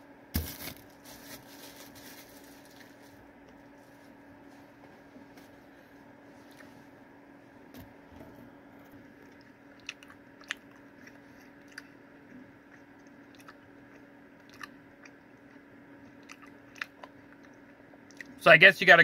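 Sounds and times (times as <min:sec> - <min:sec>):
steady low hum: 0:00.0 - 0:19.0
sticky mouth clicks and smacks: 0:09.3 - 0:11.9.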